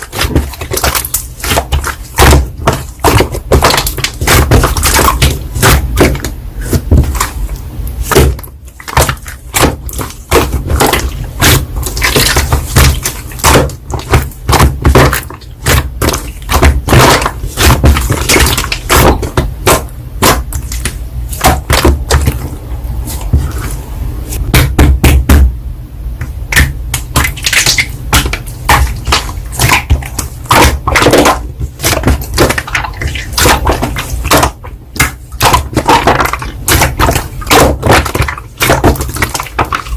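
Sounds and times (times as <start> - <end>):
slime crackling and popping: 0.0 - 22.4.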